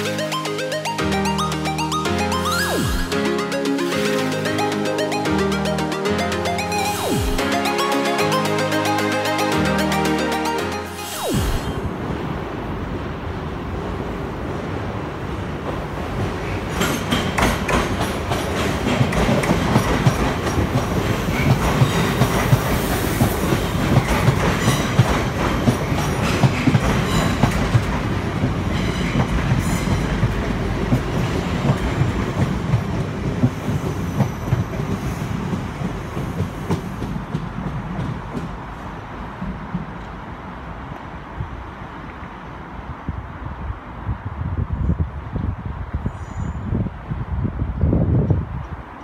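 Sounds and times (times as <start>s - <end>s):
train wheels clicking over rail joints: 16.2s - 40.1s.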